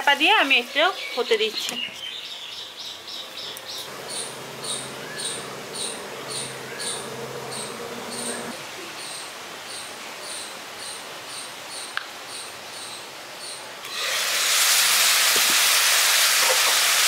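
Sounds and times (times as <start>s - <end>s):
insect chirping: 3.9s - 8.6s.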